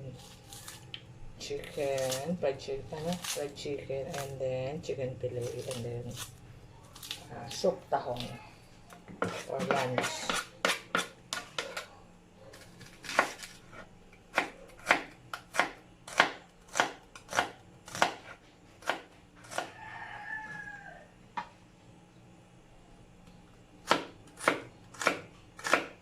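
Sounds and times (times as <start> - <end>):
knife chopping on cutting board: 9.1 - 11.8, 12.8 - 13.5, 14.3 - 19.7, 23.8 - 26.0
rooster crowing: 19.4 - 21.2.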